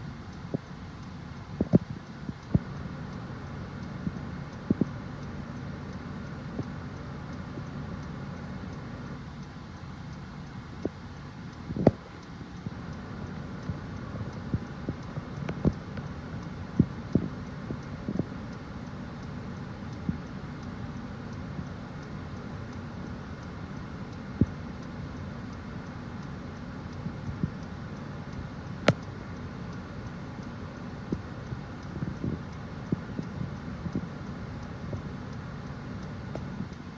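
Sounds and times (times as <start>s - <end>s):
sharp taps and clicks: 13.6s - 18.3s, 28.8s - 29.8s.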